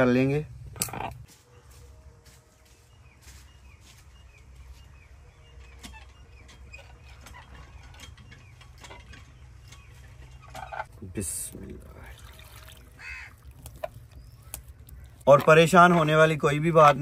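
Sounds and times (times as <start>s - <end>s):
faint birds chirping: 0.0s - 17.0s
low steady hum: 5.0s - 15.4s.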